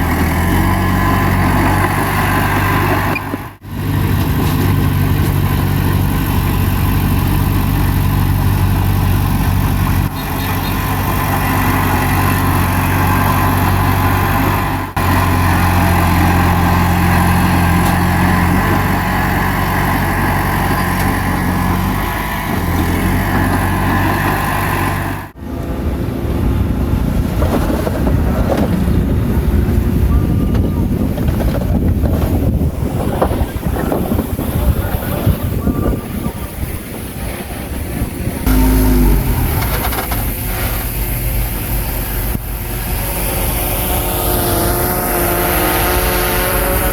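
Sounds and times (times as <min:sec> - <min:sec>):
bulldozer diesel engine running: 0:00.0 - 0:46.9
wind rumble on microphone: 0:25.4 - 0:40.6.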